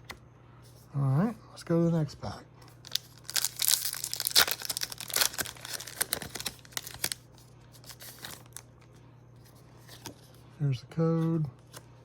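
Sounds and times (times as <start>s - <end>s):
foil wrapper tearing and crinkling: 2.8s - 7.2s, 7.8s - 8.6s.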